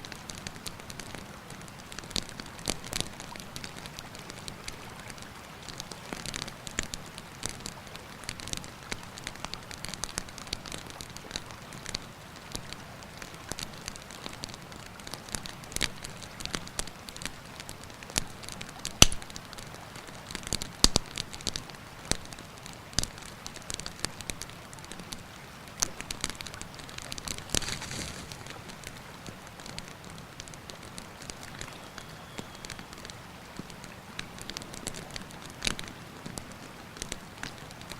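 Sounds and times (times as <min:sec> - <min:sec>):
campfire crackling and popping: 0:00.0 - 0:37.9
river rushing: 0:26.4 - 0:37.9.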